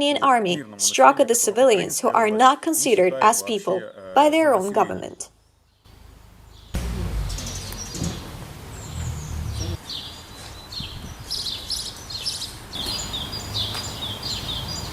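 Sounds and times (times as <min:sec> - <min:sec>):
small birds chirping: 0:04.8 - 0:14.9
low outdoor rumble: 0:05.9 - 0:09.9.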